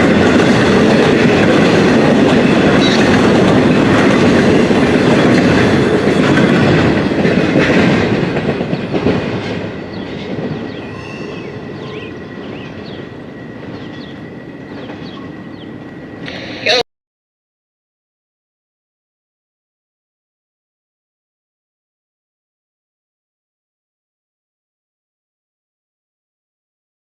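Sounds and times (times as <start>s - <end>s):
freight train rolling on rails: 0.0s - 16.8s
faint bird chirps: 10.0s - 15.8s.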